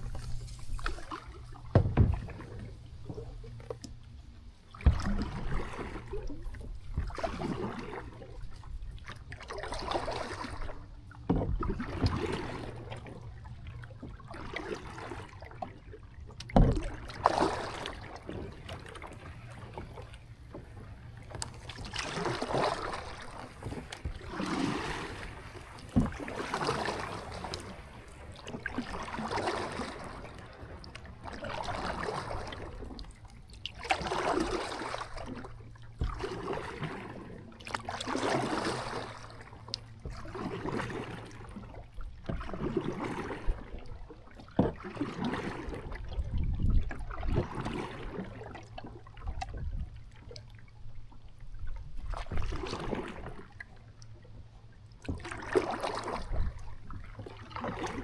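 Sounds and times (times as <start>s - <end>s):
kayak paddle swishing through water: 0.0s - 58.0s
dull thumps: 1.6s - 3.5s, 23.4s - 29.0s.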